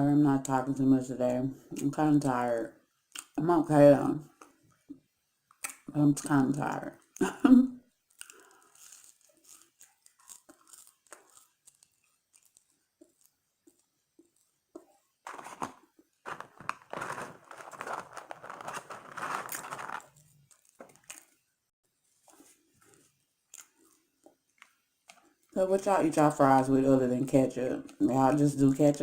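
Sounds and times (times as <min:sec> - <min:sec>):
paper packaging crinkling: 0:08.1 - 0:13.3, 0:15.3 - 0:21.4.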